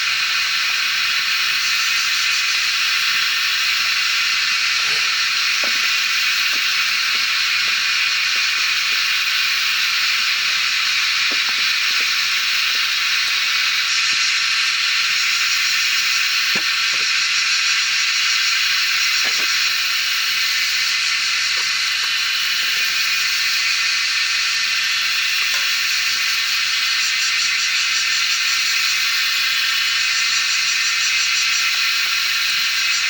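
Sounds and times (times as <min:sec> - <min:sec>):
insect chorus shrill buzz: 0:00.0 - 0:33.0
faint ticks and snaps: 0:25.4 - 0:25.8.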